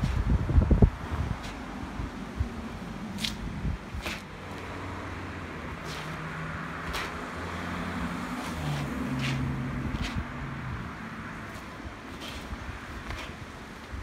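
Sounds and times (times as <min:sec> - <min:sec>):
vehicle engine humming: 0:00.5 - 0:14.0
short swishes: 0:03.2 - 0:04.7, 0:05.7 - 0:07.4, 0:08.4 - 0:10.4, 0:11.4 - 0:13.5.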